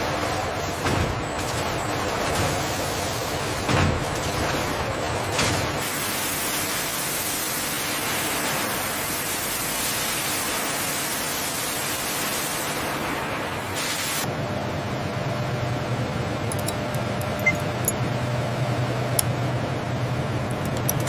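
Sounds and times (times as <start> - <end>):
steady hiss: 5.8 - 14.3.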